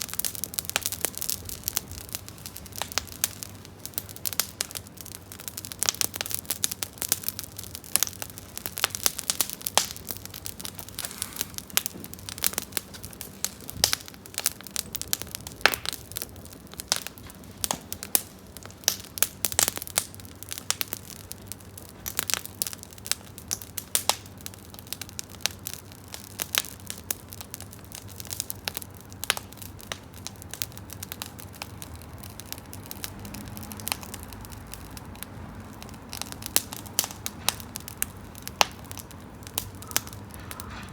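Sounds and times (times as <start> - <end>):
campfire crackling and popping: 0.0 - 40.9
low hiss of fire: 0.0 - 40.9.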